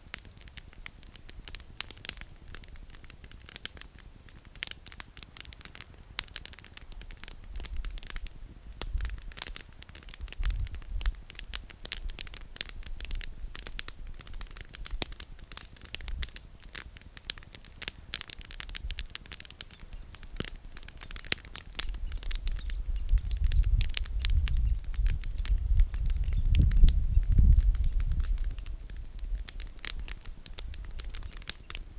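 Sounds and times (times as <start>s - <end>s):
campfire crackling and popping: 0.0s - 31.9s.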